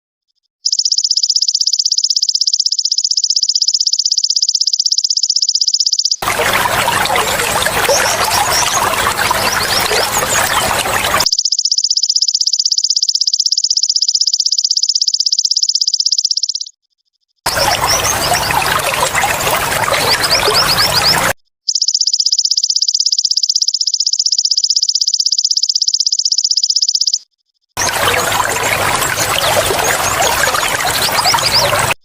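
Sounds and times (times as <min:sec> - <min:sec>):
trickling water: 0:06.2 - 0:11.3, 0:17.5 - 0:21.4, 0:27.8 - 0:32.0.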